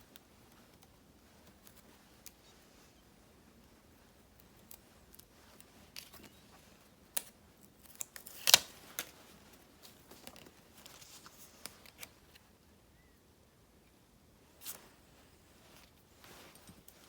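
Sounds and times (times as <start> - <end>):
paper rustling: 7.7 - 12.5
scissors snipping: 7.9 - 8.7.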